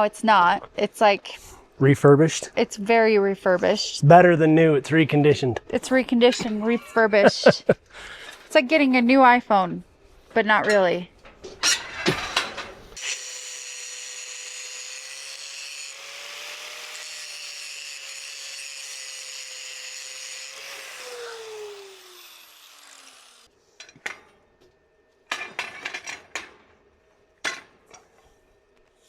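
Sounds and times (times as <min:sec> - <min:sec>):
angle grinder on metal: 0:13.0 - 0:23.5.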